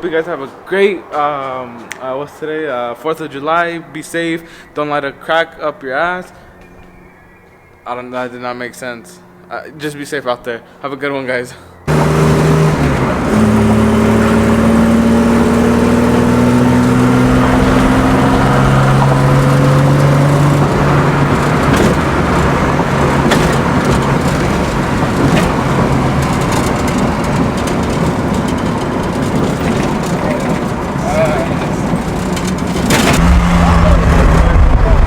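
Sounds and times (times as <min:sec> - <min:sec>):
car engine accelerating: 0:11.7 - 0:35.0
steady rushing noise: 0:32.8 - 0:35.0.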